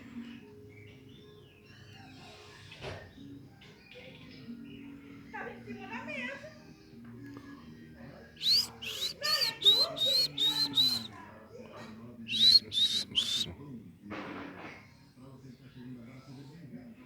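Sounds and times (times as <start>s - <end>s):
monkeys whistled calls: 8.4s - 11.1s, 12.3s - 13.5s.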